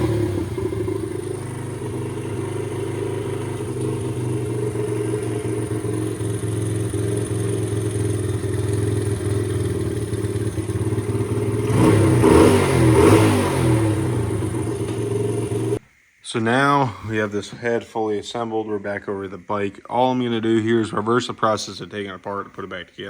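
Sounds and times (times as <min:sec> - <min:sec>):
small motorcycle engine revving: 0:00.0 - 0:15.8.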